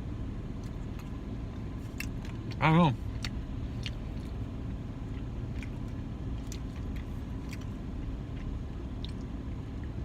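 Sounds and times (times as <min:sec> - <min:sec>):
car idling: 0:00.0 - 0:10.0.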